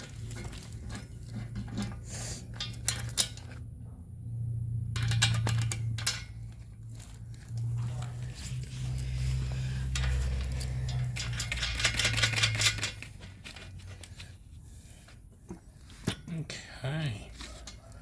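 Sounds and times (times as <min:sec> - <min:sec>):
metal parts clinking: 0:00.0 - 0:03.6, 0:04.9 - 0:14.2
steady low hum: 0:00.0 - 0:17.3.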